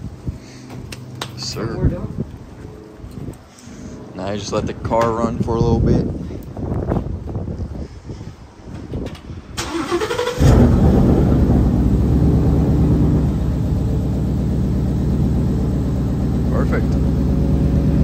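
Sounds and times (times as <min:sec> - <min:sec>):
car engine starting and idling: 0:09.6 - 0:18.0.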